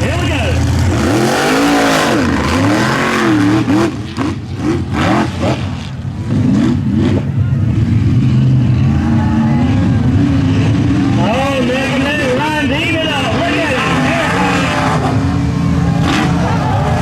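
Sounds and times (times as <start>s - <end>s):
truck engine revving hard: 0.0s - 17.0s.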